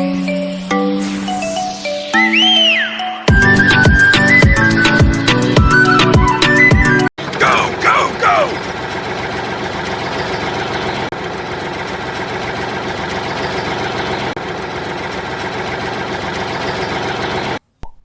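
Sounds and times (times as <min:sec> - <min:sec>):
engine idling: 0:07.2 - 0:17.6.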